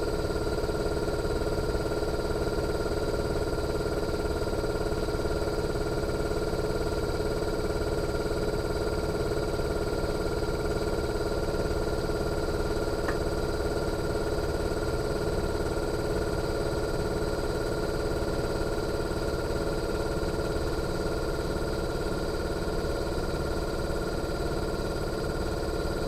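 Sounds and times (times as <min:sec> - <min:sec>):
air conditioner compressor humming: 0:10.5 - 0:15.7.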